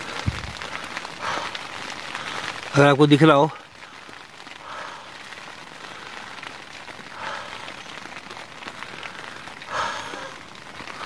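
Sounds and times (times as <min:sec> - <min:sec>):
rain pattering on a tent: 0:00.0 - 0:11.0.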